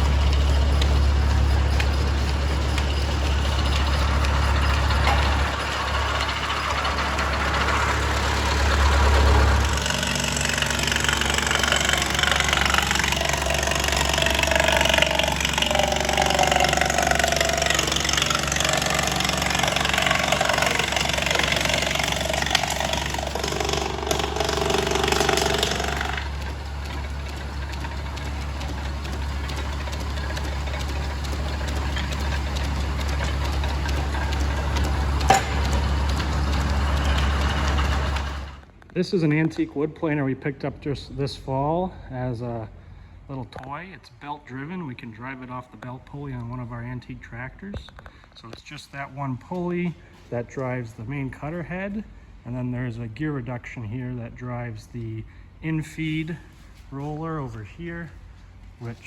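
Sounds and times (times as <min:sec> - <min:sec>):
wood planer cutting board: 0:00.0 - 0:38.6
planer drive running: 0:00.0 - 0:38.7
tractor engine running: 0:00.0 - 0:38.8.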